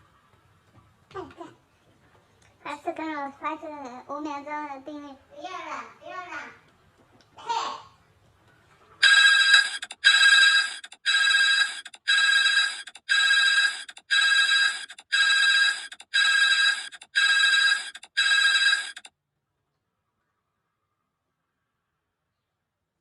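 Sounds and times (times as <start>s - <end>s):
telephone ringing: 9.0s - 19.1s.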